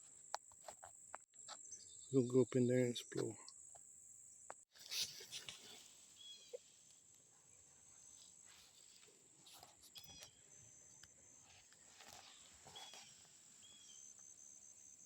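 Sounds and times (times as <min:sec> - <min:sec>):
short bird chirps: 0:12.2 - 0:14.9.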